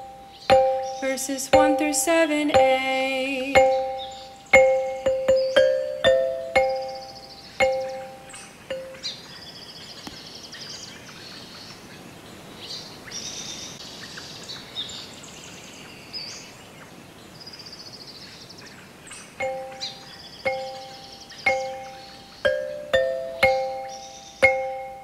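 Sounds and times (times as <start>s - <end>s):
chimed mallet note: 0.0s - 9.1s, 19.4s - 25.0s
chimed music: 0.0s - 9.1s, 19.4s - 25.0s
faint steady hiss: 0.0s - 25.0s
songbirds singing: 0.0s - 25.0s.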